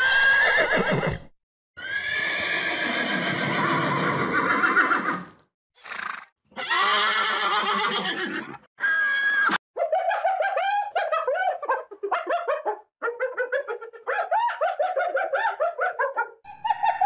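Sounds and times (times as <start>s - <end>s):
horse whinnying: 0.0s - 9.6s.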